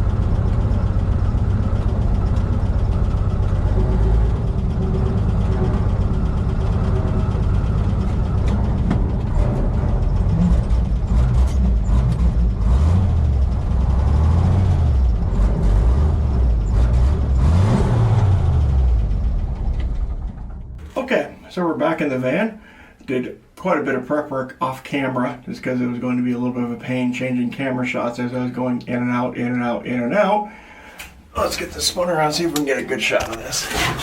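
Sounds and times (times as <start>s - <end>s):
truck engine revving: 0.0s - 20.9s, 33.4s - 34.0s.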